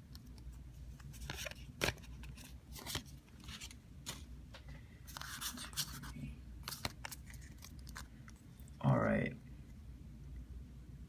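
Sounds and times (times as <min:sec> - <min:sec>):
cards scraping: 0:00.9 - 0:04.2, 0:05.1 - 0:08.2.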